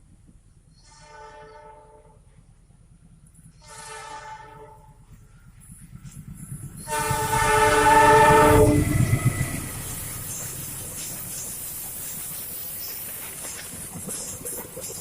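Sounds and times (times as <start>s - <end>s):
train rumble: 0.0s - 15.0s
train horn blasts: 0.7s - 2.3s, 3.5s - 5.1s, 6.8s - 9.4s.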